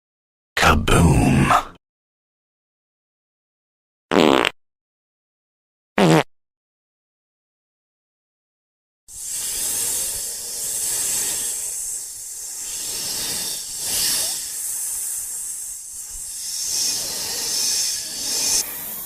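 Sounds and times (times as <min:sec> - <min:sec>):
loud hissing noise: 0:09.1 - 0:19.0.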